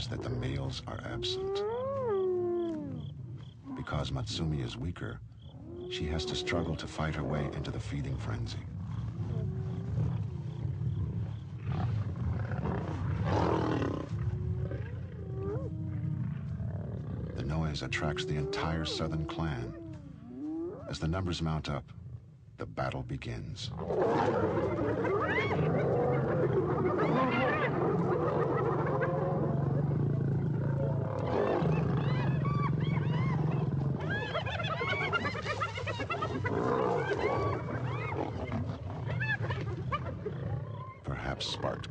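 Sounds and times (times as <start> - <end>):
hyenas whooping: 5.6 - 7.8, 11.3 - 21.0, 23.8 - 41.3
lions snarling and growling: 5.6 - 21.3, 23.7 - 41.9.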